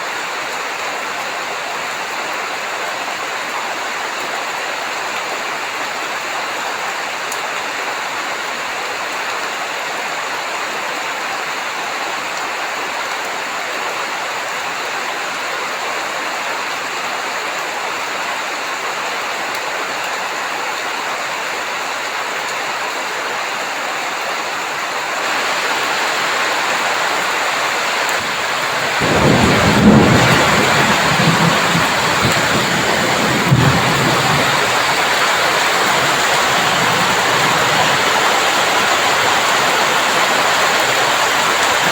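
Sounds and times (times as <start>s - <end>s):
heavy rain hissing: 24.0s - 41.9s
thunder rumbling: 26.6s - 41.9s.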